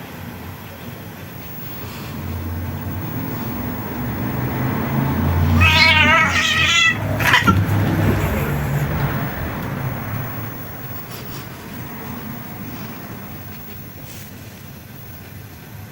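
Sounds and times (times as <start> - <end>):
cat meowing: 5.5 - 7.7.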